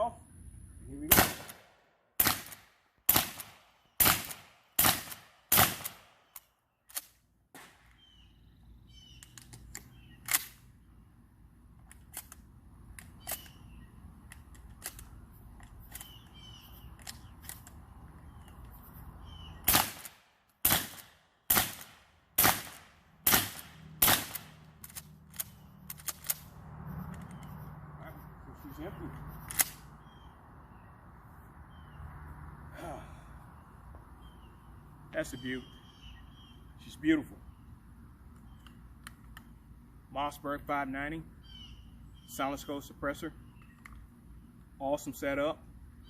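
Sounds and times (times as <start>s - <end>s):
suppressed shotgun shots: 1.1s - 8.0s, 19.6s - 26.5s
low hum: 20.8s - 34.9s.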